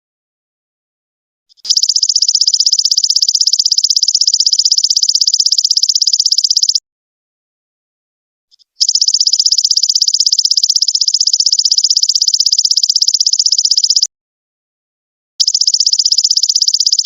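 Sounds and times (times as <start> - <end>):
insect trilling: 1.5 - 6.8, 8.7 - 14.1, 15.4 - 17.0.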